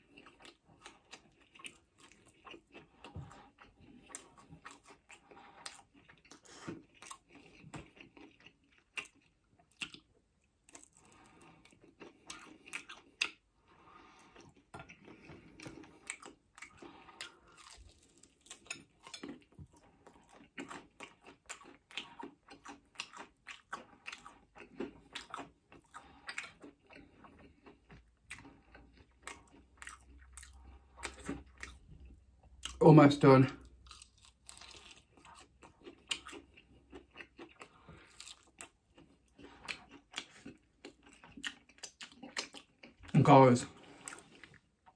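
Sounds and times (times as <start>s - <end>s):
chewing and crunching: 0.0s - 44.9s.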